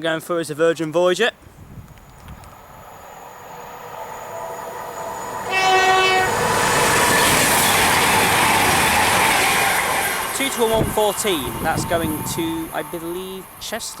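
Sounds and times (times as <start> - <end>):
diesel train passing: 1.6 - 14.0
train horn: 4.3 - 8.2.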